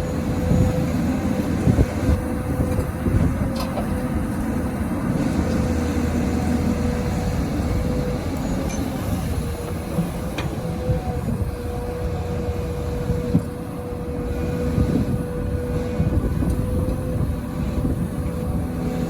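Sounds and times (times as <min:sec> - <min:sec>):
diesel engine rumble: 0:00.0 - 0:19.0.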